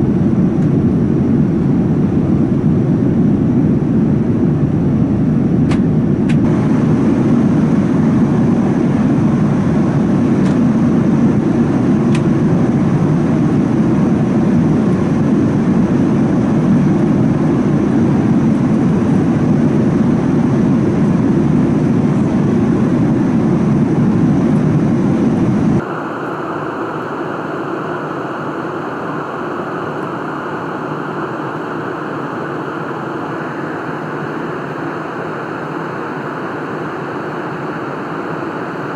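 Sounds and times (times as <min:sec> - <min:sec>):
aircraft engine rumble in cabin: 0:00.0 - 0:38.9
steady hiss: 0:25.8 - 0:38.9.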